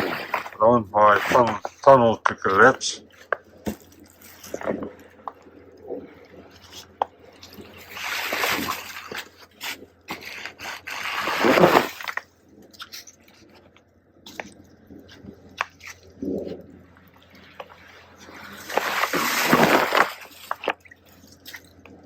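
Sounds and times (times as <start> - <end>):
snow sliding across plastic: 0.0 - 5.3, 5.9 - 12.3, 17.4 - 20.8.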